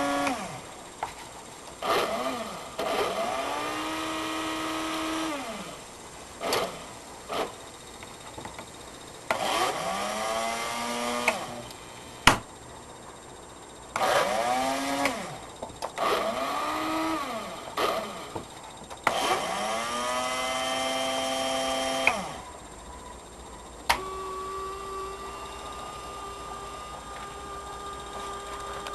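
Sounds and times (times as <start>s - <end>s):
model train motor whining: 0.0s - 12.3s, 13.9s - 28.9s
sharp clicks: 11.1s - 12.5s, 13.9s - 16.4s, 17.7s - 19.7s, 20.7s - 22.5s, 23.8s - 24.2s.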